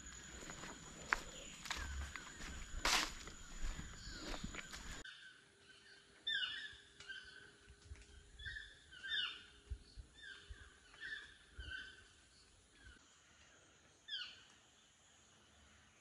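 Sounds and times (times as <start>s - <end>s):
bird calling: 0.0s - 5.4s, 8.4s - 12.2s.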